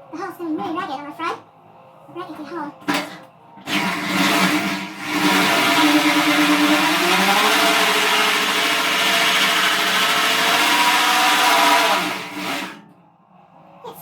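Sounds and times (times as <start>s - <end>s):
electric drill cutting sheet steel: 3.7s - 12.8s.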